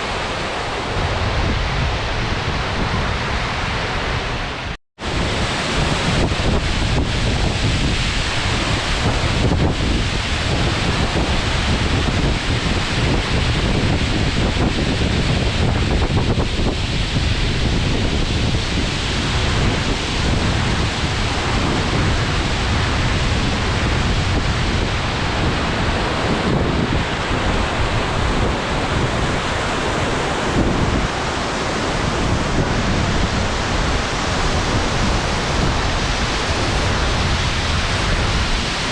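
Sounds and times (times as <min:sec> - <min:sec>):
waterfall rushing: 0:00.0 - 0:04.4, 0:05.0 - 0:38.9.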